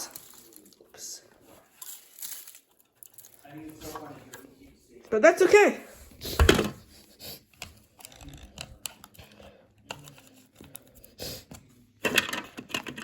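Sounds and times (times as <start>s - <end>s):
plastic clicks and scrapes: 7.5s - 13.0s.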